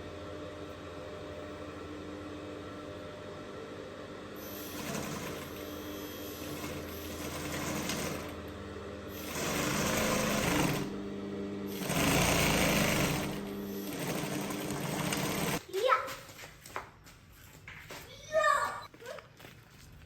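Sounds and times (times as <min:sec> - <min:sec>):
sewing machine stitching: 0:04.4 - 0:08.5, 0:09.1 - 0:11.0, 0:11.7 - 0:15.6.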